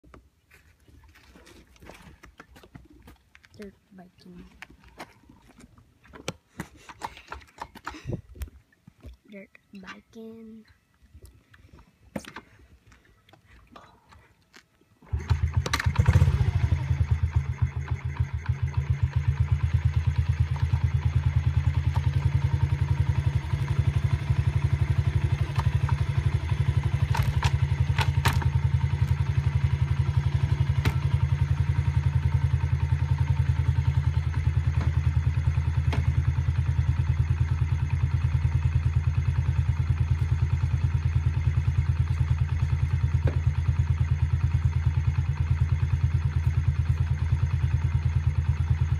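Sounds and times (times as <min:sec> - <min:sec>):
dirt bike engine starting and idling: 0:15.0 - 0:48.9.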